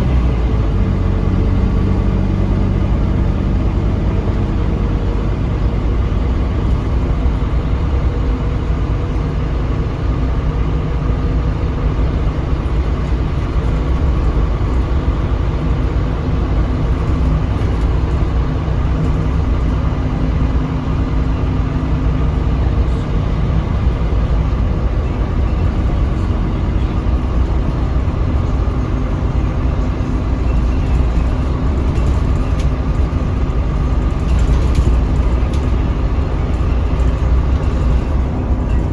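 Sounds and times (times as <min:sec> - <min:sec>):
bus diesel engine drone: 0:00.0 - 0:38.9
road rumble: 0:00.0 - 0:38.9
faint rattles: 0:29.6 - 0:38.9.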